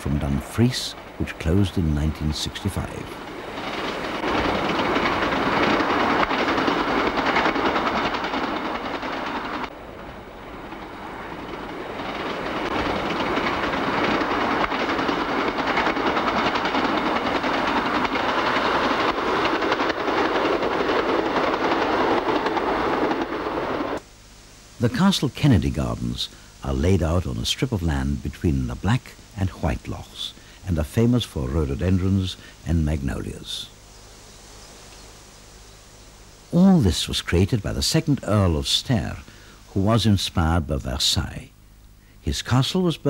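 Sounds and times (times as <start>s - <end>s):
train wheels on rails: 0.0s - 24.1s, 24.7s - 40.4s.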